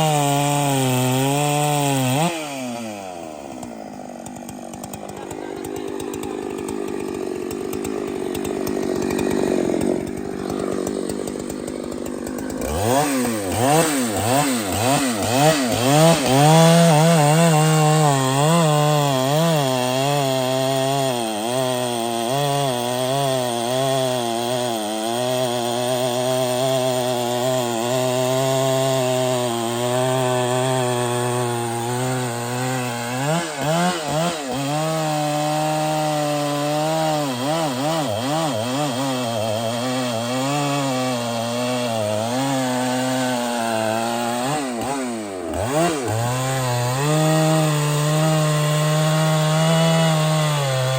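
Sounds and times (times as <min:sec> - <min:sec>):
chainsaw cutting tree trunk: 0:00.0 - 0:50.9.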